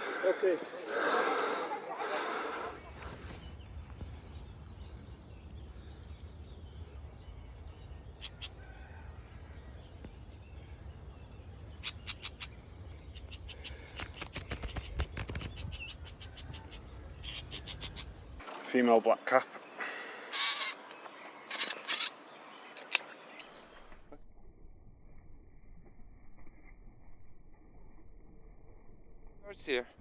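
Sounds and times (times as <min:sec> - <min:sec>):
low wind rumble: 0:00.0 - 0:18.4
songbird clicking tack calls: 0:08.1 - 0:08.6, 0:11.8 - 0:18.2, 0:20.3 - 0:24.0.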